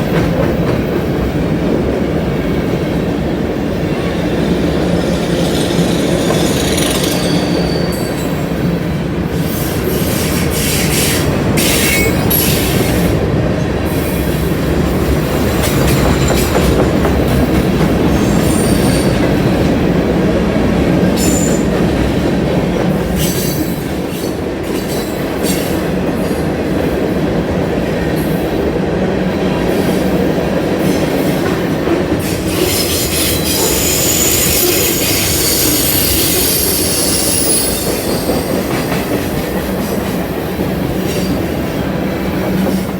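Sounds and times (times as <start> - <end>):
freight train wheels rumbling: 0.0 - 42.9
high-pitched wheel squeals: 4.0 - 8.6, 32.7 - 38.7.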